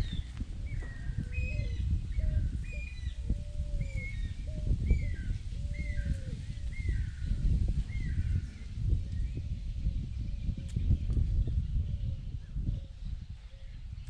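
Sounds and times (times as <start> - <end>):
lower downward bird calls: 0.0 - 9.4
steady low rumble: 0.0 - 14.0.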